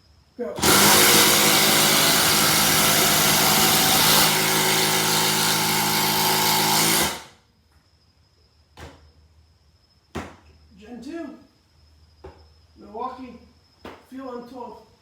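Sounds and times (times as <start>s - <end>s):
impact drivers hammering screws: 0.6s - 7.3s.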